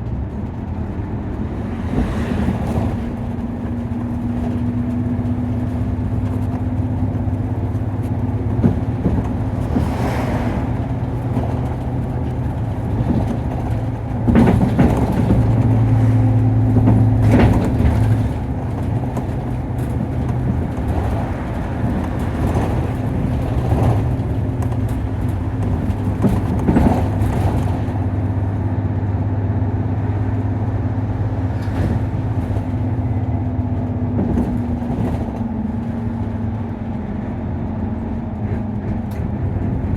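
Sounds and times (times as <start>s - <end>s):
bus diesel engine drone: 0.0s - 39.9s
knocks and rattles: 0.3s - 28.5s.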